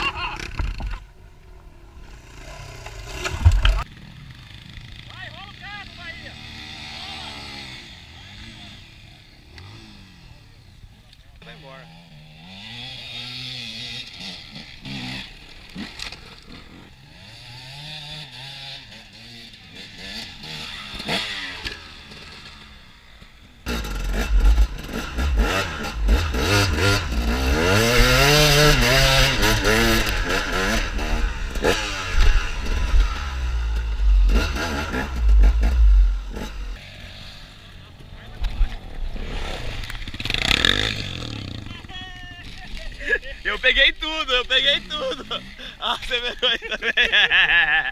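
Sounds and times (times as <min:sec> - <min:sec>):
motorcycle engines revving: 0:00.0 - 0:47.9
heavy low rumble: 0:23.8 - 0:26.4, 0:32.3 - 0:36.8.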